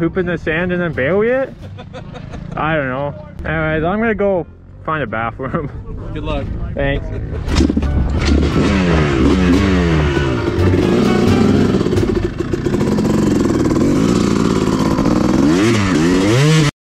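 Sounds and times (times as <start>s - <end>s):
dirt bike engine revving: 7.4s - 16.7s.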